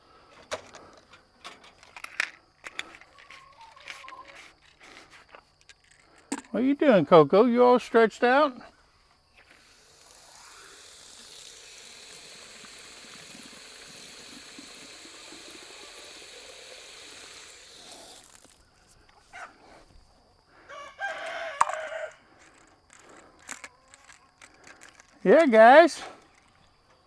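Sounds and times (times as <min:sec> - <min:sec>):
steady hiss: 0:06.6 - 0:20.1, 0:24.8 - 0:26.4
rooster crowing: 0:20.6 - 0:22.2.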